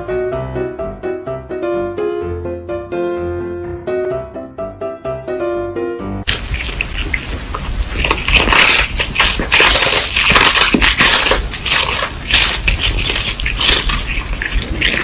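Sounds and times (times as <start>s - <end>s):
cat crunching a hard treat: 6.3s - 15.0s.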